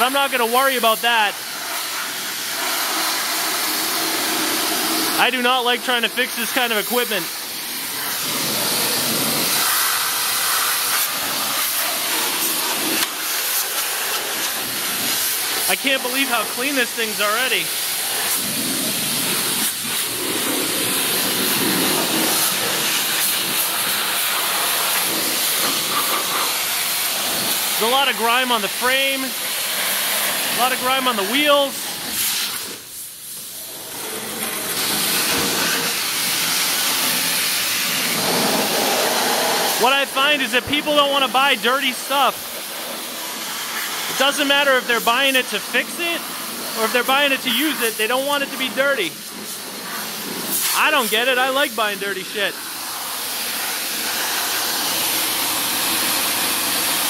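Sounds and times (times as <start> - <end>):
high-pressure water spray hissing: 0.0 - 57.0.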